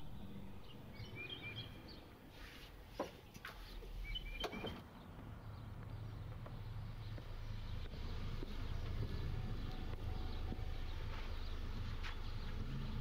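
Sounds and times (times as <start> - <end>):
small birds chirping: 0.0 - 13.0
car engine hum: 4.9 - 13.0.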